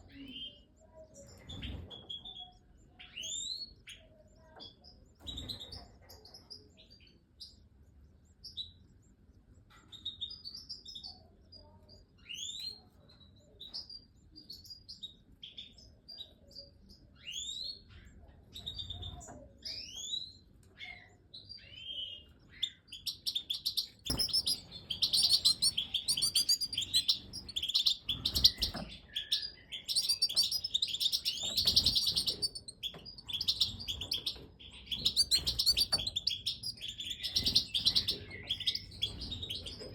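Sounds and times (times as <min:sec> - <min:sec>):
birds chirping and whistling: 0:01.4 - 0:04.1, 0:18.6 - 0:39.9
rapid high-pitched bird twittering: 0:01.5 - 0:07.1, 0:18.5 - 0:39.9.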